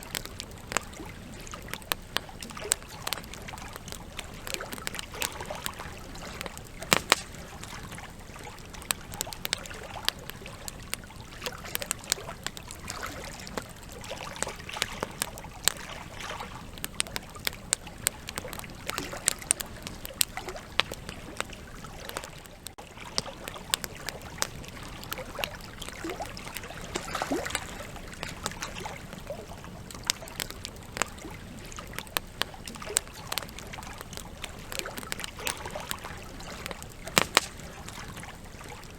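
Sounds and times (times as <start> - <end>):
campfire crackling and popping: 0.0 - 38.9
low rush of flame: 27.9 - 38.9.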